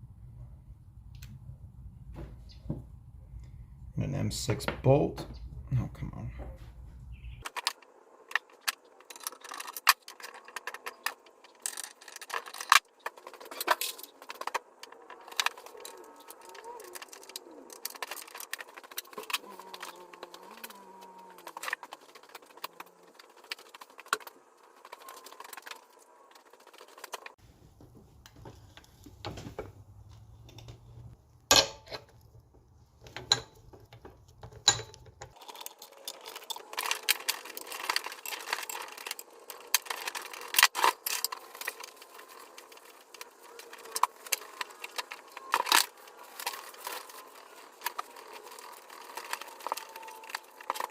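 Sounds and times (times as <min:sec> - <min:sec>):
low hum: 0:00.0 - 0:07.4
metal parts clinking and tapping: 0:31.5 - 0:50.9.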